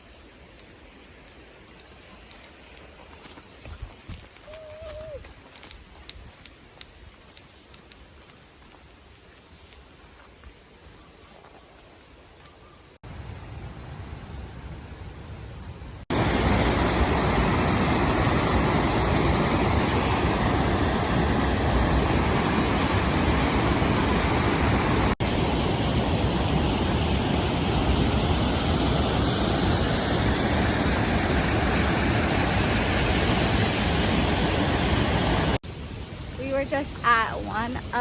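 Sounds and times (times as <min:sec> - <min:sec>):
creek water rushing over rocks: 0:16.1 - 0:37.5.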